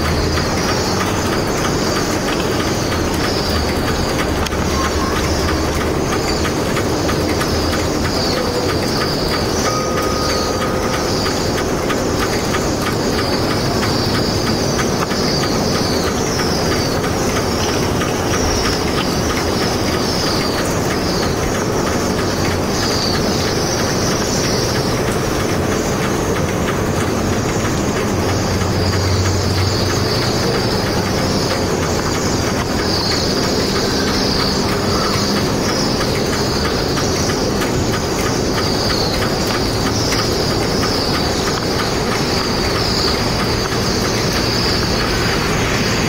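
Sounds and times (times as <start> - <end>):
machinery or traffic rumble: 0.0 - 46.0.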